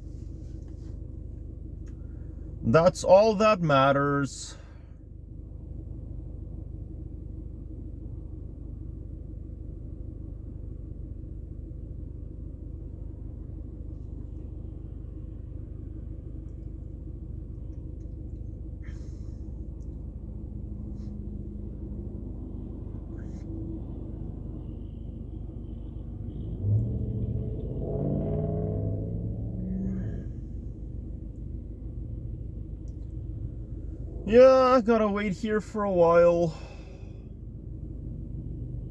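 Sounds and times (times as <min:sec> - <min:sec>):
faint steady hum: 0:00.0 - 0:27.0
car rumbling on the move: 0:00.0 - 0:38.9.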